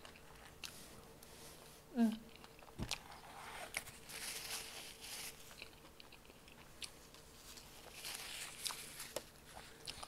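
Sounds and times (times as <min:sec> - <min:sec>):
close chewing with mouth clicks: 0:00.0 - 0:00.9, 0:01.6 - 0:03.9, 0:04.6 - 0:10.0
paper napkin rustling: 0:03.1 - 0:05.6, 0:07.2 - 0:09.9.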